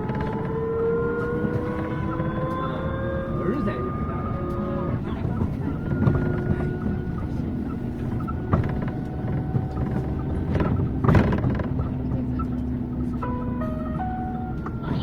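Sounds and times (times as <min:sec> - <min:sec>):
bus rumbling over road: 0:00.0 - 0:15.0.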